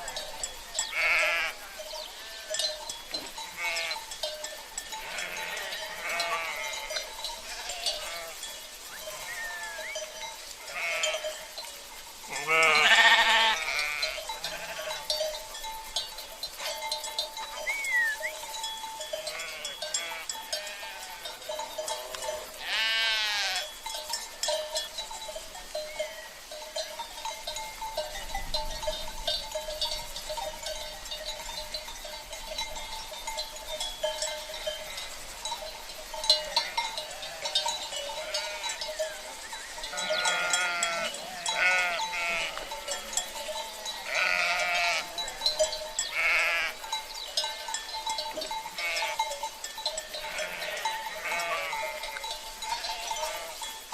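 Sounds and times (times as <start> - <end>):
sheep bleating: 0.0 - 2.6, 3.4 - 4.0, 5.0 - 10.0, 10.6 - 11.5, 12.3 - 15.0, 19.2 - 23.7, 36.4 - 43.2, 44.0 - 45.4, 46.1 - 46.8, 48.7 - 49.3, 50.2 - 53.6
livestock bells clinking: 0.0 - 53.9.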